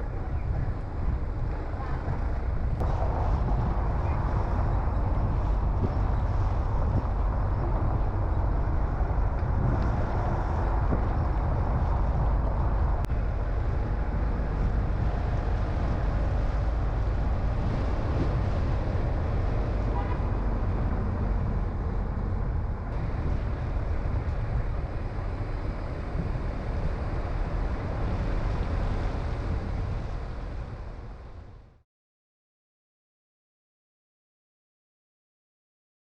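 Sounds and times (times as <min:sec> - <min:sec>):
car engine and tyre noise: 0:00.0 - 0:31.8.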